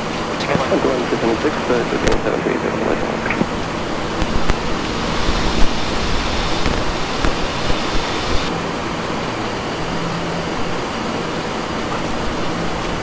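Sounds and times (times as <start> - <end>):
low steady hum: 0.0 - 8.5
loud rushing hiss: 0.0 - 12.8.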